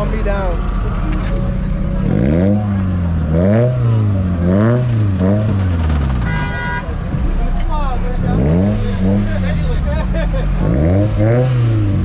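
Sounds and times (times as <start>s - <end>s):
steady high tone: 0.0s - 4.7s
car engine revving: 0.0s - 12.0s.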